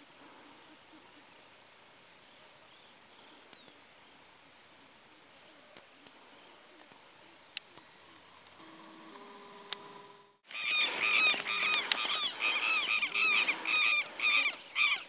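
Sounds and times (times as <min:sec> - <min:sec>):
birds calling harshly: 0:10.4 - 0:15.0.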